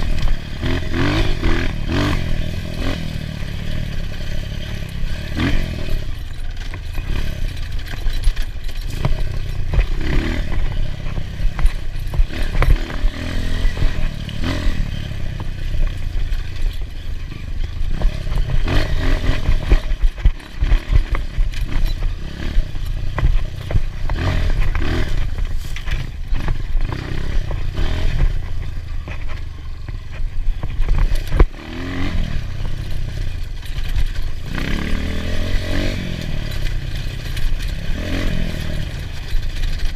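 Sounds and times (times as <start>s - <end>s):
dirt bike engine revving: 0.0s - 39.9s
clattering knocks and scrapes: 3.9s - 35.2s.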